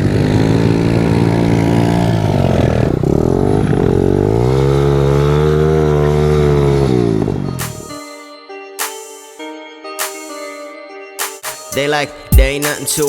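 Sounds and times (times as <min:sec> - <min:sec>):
small motorcycle engine revving: 0:00.0 - 0:07.9.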